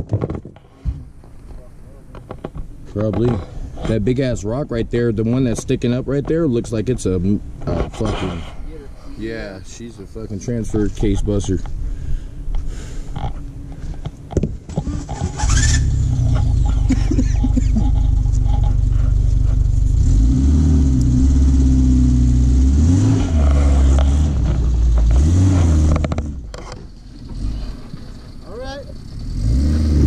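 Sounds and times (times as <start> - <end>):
car engine revving: 14.8 - 30.0.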